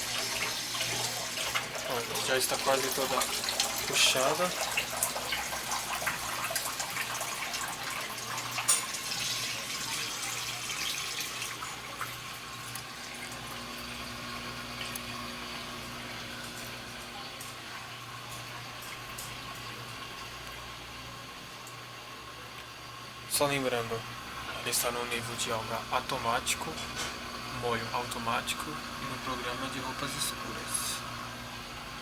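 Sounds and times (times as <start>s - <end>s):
washing machine hum: 0.0s - 32.0s.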